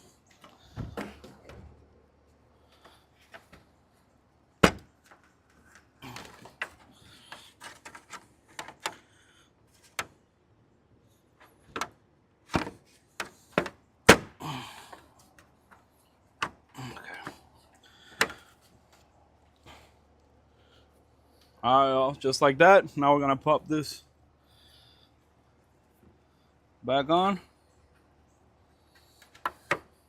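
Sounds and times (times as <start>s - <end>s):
scraping and rustling: 5.0s - 9.0s.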